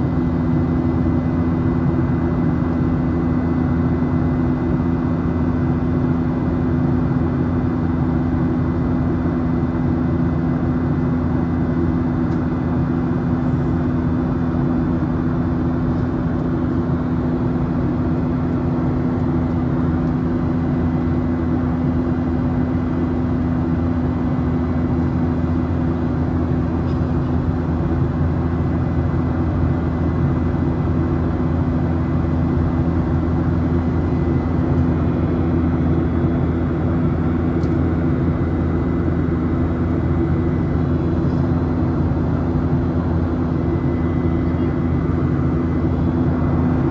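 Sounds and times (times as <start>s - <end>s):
constant low hum: 0.0s - 46.9s
jet engine drone: 12.8s - 46.9s.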